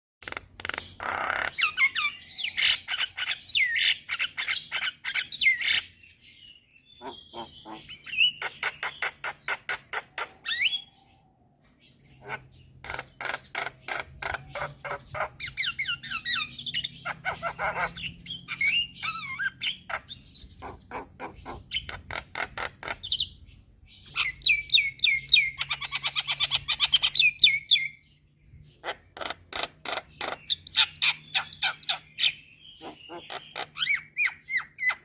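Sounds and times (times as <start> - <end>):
myna calling: 6.9 - 10.9, 12.1 - 23.2, 28.8 - 35.0.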